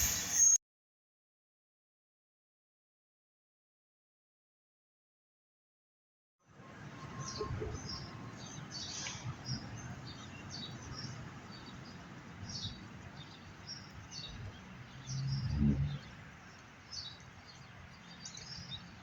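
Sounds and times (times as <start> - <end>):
songbirds chirping and singing: 7.0 - 19.0.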